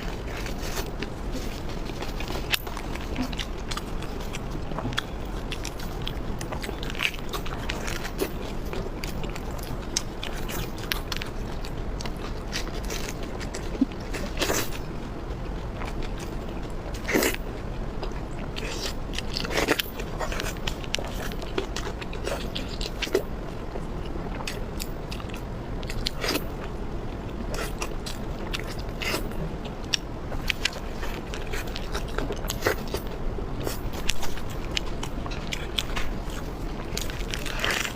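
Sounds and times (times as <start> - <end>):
low steady hum: 0.0 - 37.9
person chewing and crunching food: 0.0 - 37.9.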